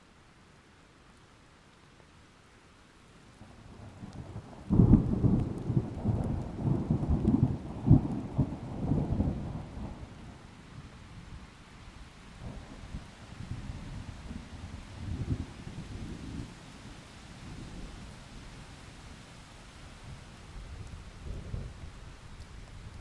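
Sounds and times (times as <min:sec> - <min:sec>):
steady rain: 0:00.0 - 0:23.0
thunder clap and rumble: 0:04.6 - 0:10.2.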